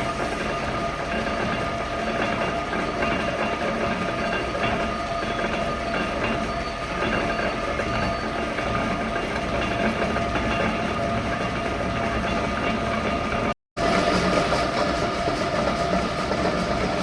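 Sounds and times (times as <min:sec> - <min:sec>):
metal lathe running: 0:00.0 - 0:17.0.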